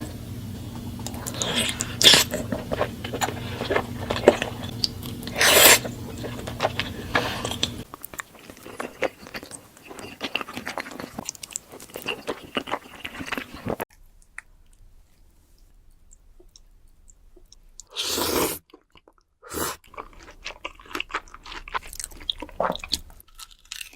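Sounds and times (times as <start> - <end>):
low background hum: 0.0 - 17.9
wet chewing and mouth sounds: 0.7 - 14.9, 15.6 - 23.9.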